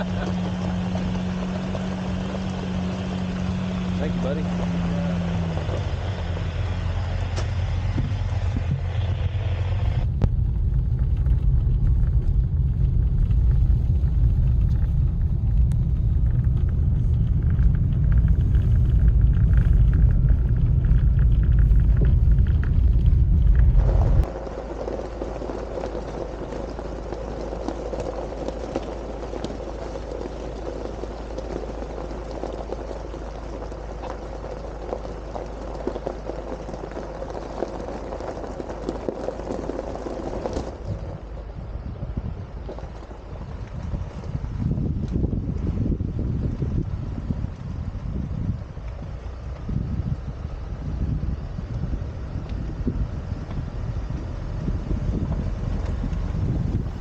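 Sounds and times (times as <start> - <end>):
off-road vehicle engine rumble: 0.0 - 57.0.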